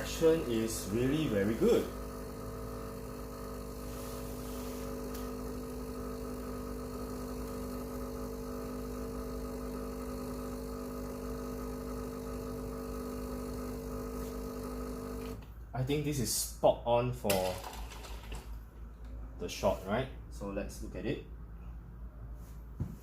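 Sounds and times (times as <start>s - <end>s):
espresso machine pump humming: 0.0s - 15.6s, 17.4s - 18.6s.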